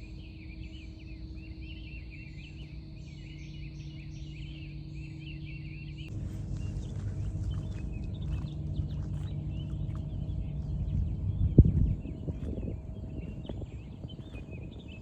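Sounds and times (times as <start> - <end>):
small birds chirping and twittering: 0.0 - 15.0
steady low rumble: 5.8 - 15.0.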